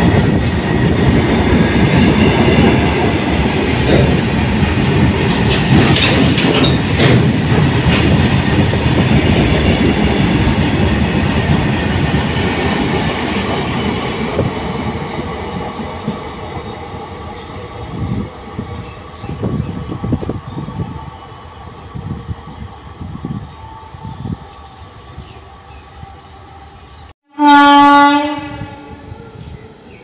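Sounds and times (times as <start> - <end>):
train wheels clattering over rail joints: 1.2 - 17.7
sharp clanks: 5.2 - 8.2.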